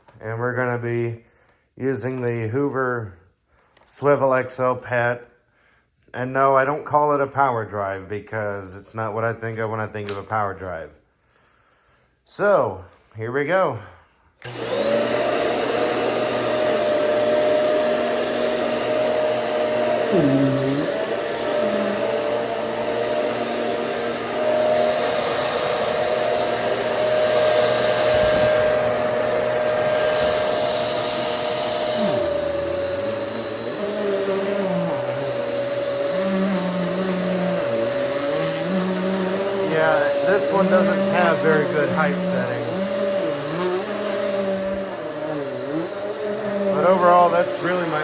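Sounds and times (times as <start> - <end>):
vacuum cleaner motor whine: 14.4 - 48.0.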